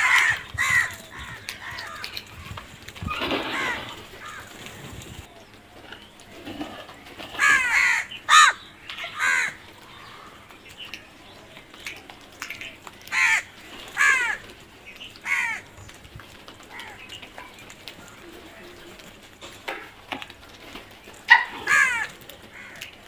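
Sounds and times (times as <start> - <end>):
crows cawing: 0.0 - 2.6, 3.2 - 4.8, 7.3 - 10.5, 13.0 - 14.5, 15.2 - 15.7, 16.7 - 17.1, 21.3 - 23.0.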